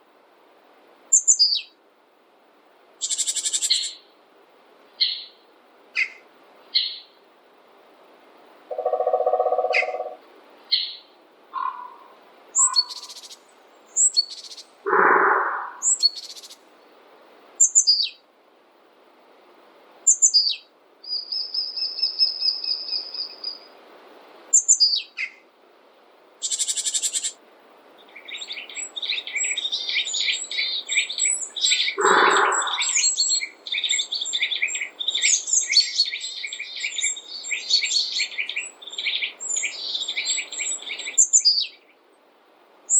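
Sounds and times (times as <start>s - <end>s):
songbirds chirping and whistling: 1.1s - 1.8s, 5.0s - 5.4s, 6.0s - 7.2s, 8.7s - 16.6s, 17.6s - 18.2s, 20.1s - 23.7s, 24.6s - 25.4s, 28.0s - 42.0s
fast chattering birdsong: 8.7s - 10.2s, 12.6s - 13.4s, 14.0s - 16.6s, 28.2s - 41.6s
lower bird call: 8.7s - 16.6s, 28.2s - 41.7s.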